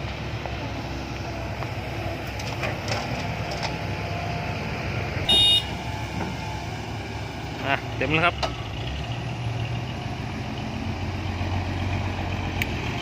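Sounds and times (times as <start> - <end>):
diesel engines running: 0.0 - 13.0
loud horn beep: 5.3 - 5.9.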